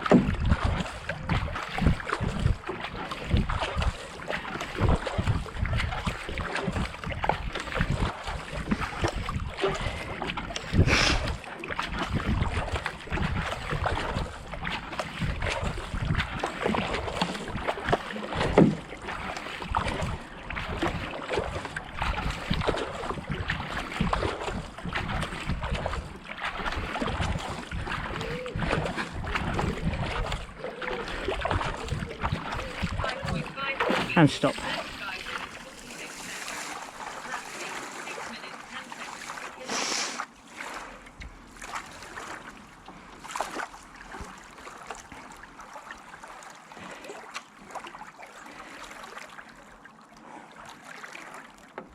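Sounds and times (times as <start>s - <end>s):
paddle strokes splashing water: 0.0s - 51.9s.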